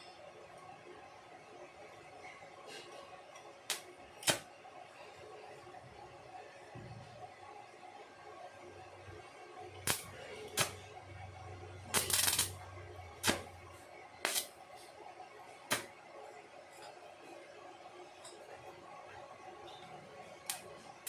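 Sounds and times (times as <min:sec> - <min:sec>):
low electrical hum: 0:00.0 - 0:21.0
welding arc crackling: 0:03.7 - 0:04.4, 0:09.8 - 0:10.9, 0:11.8 - 0:14.5, 0:20.5 - 0:20.7.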